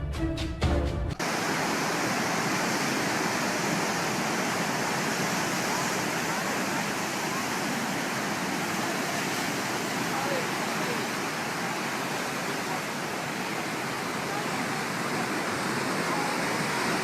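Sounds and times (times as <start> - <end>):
waves breaking: 1.2 - 17.0
wind: 1.2 - 17.0.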